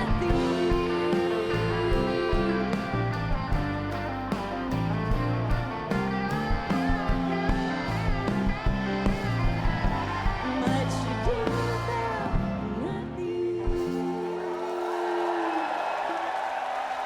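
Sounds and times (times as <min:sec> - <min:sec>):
person singing: 0:00.0 - 0:03.4, 0:10.0 - 0:15.7
crowd cheering: 0:00.0 - 0:10.8, 0:13.9 - 0:17.0
live rock band playing: 0:00.0 - 0:13.1
drums: 0:00.0 - 0:15.6.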